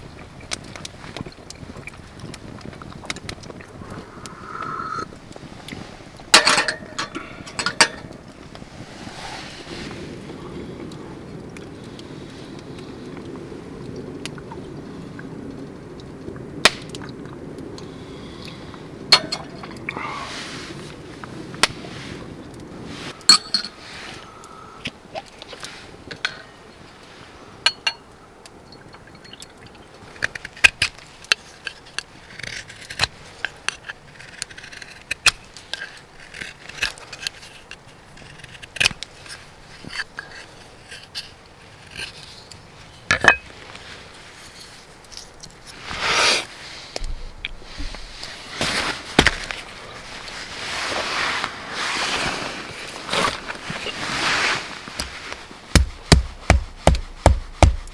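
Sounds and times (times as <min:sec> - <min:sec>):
camp cookware clinking: 0:06.3 - 0:08.3, 0:19.1 - 0:19.8, 0:23.2 - 0:23.8, 0:43.1 - 0:43.6.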